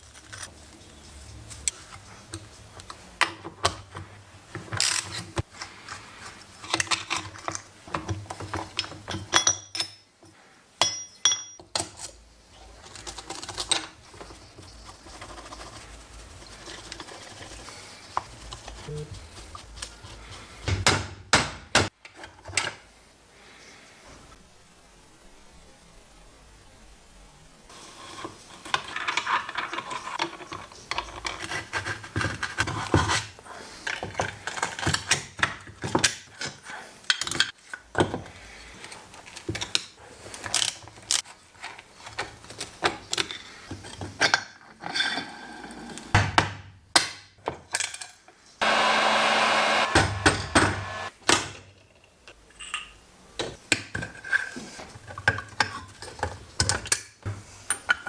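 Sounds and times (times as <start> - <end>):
power tool running: 48.6 - 51.1.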